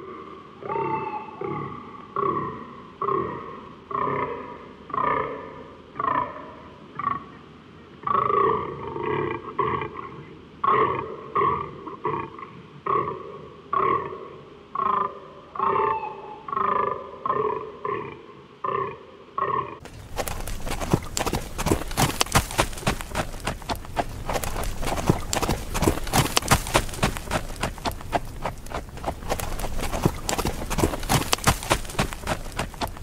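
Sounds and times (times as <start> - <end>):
deer groaning: 19.8 - 33.0.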